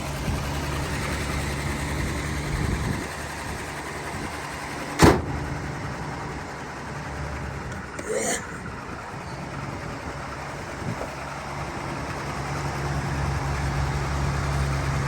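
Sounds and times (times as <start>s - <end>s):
truck engine running: 0.0s - 15.0s
door slamming shut: 5.0s - 5.4s.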